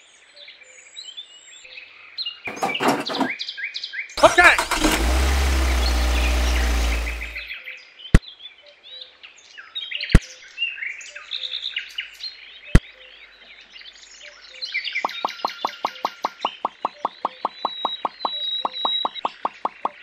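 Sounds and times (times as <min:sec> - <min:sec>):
toy tractor engine sound: 0:04.2 - 0:07.5
birds chirping: 0:15.1 - 0:20.0.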